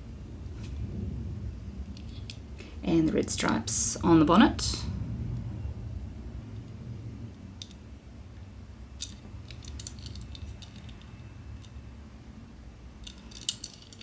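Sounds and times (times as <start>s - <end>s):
low steady hum: 0.0s - 14.0s
toy truck clicks and taps: 9.0s - 11.8s, 13.0s - 14.0s.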